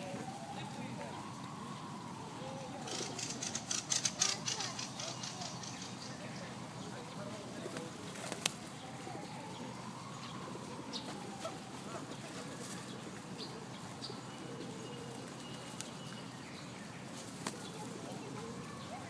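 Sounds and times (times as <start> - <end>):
pigeons cooing: 1.4 - 5.7, 7.6 - 16.1, 17.1 - 19.0
pigeons flapping wings: 7.6 - 8.7, 17.1 - 18.1.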